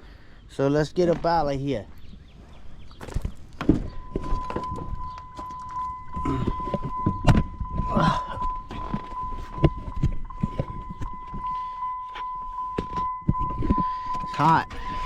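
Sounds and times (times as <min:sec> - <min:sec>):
steady high-pitched tone: 0:03.8 - 0:15.0.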